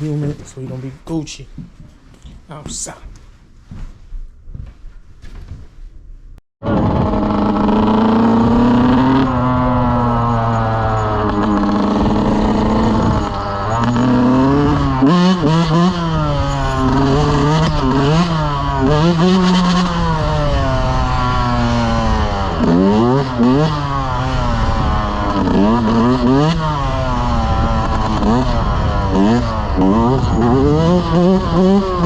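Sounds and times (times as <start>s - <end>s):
dirt bike engine revving: 6.6s - 32.0s.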